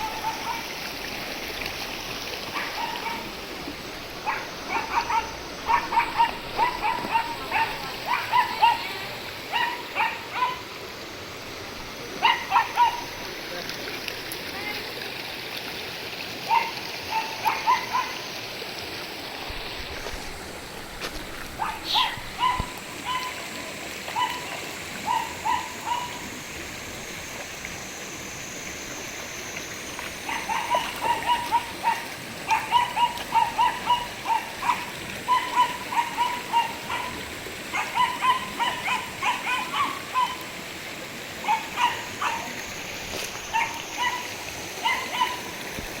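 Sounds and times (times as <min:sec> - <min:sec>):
puppy yapping: 0:04.2 - 0:10.6, 0:12.2 - 0:13.1, 0:16.5 - 0:18.1, 0:21.6 - 0:23.4, 0:24.2 - 0:26.2, 0:30.3 - 0:40.4, 0:41.4 - 0:42.5, 0:43.5 - 0:45.5.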